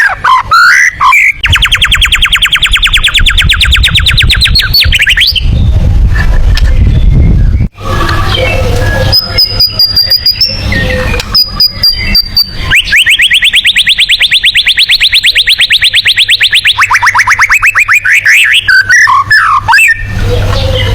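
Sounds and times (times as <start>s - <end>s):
bird singing: 0.0s - 5.7s, 6.7s - 20.9s
bird chirps and clicking rattles: 1.0s - 5.4s, 8.8s - 20.9s.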